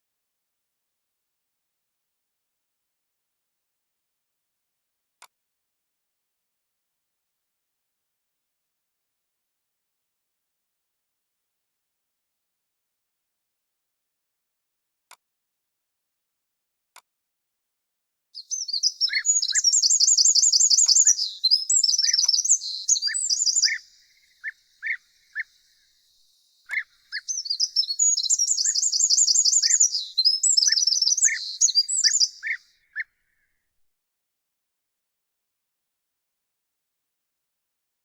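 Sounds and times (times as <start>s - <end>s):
songbirds warbling: 18.4s - 33.0s.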